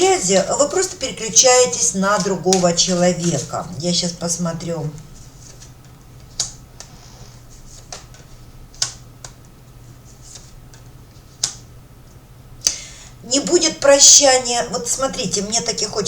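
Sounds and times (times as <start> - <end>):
low steady hum: 0.0 - 16.0
cards clicking and tapping: 2.2 - 3.4, 5.4 - 7.0, 7.7 - 9.5, 10.3 - 11.7.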